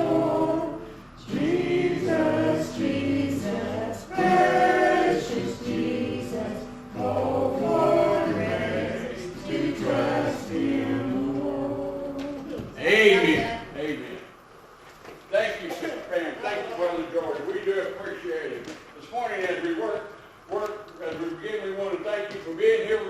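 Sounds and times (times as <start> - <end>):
choir singing a hymn: 0.0 - 13.6.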